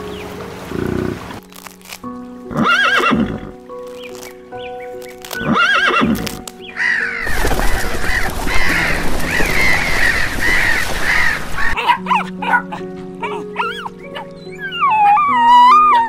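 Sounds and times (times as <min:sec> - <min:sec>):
background music: 0:00.0 - 0:16.0
horse whinnying: 0:02.5 - 0:03.6, 0:05.4 - 0:06.3
flock of gulls calling: 0:05.5 - 0:16.0.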